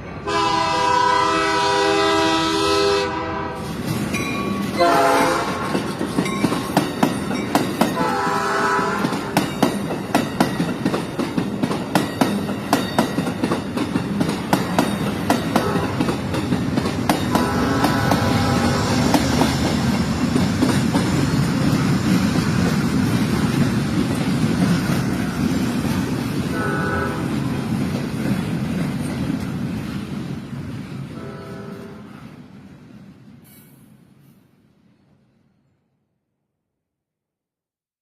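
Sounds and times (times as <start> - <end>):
train horn blasts: 0.2 - 3.7, 4.8 - 5.9, 7.9 - 9.4, 15.5 - 16.2, 17.3 - 19.2, 26.5 - 27.4, 31.2 - 32.2
train wheels clicking over rail joints: 3.6 - 31.0.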